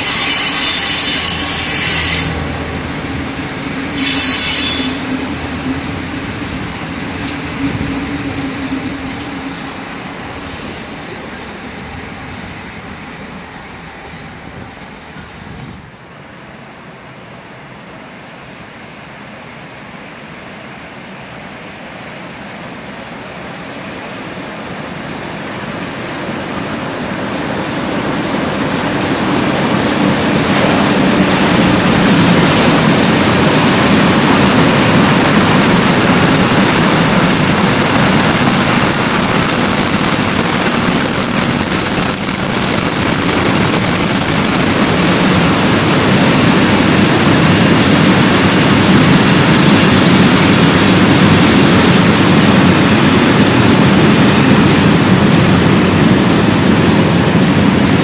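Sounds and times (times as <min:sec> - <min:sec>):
high-pitched wheel squeal: 0:00.0 - 0:02.9, 0:03.9 - 0:09.6, 0:16.2 - 0:50.6
freight train passing: 0:00.0 - 0:58.0.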